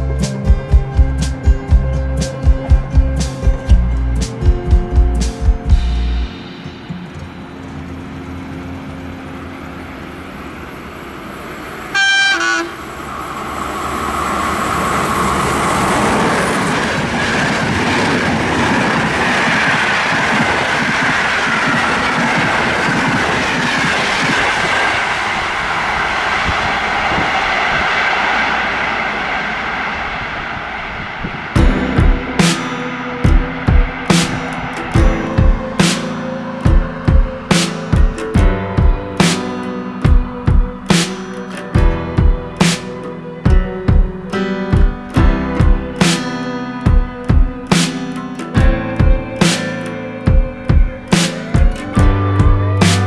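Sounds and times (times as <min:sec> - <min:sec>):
train wheels rushing on rail: 0:00.0 - 0:53.0
locomotive horn blast: 0:11.8 - 0:13.1.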